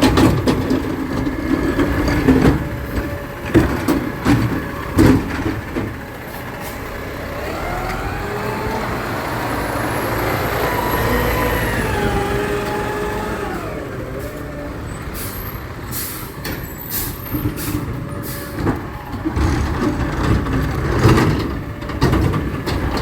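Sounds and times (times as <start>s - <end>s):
diesel engine revving: 0.0s - 23.0s
truck air hisses: 15.0s - 18.6s.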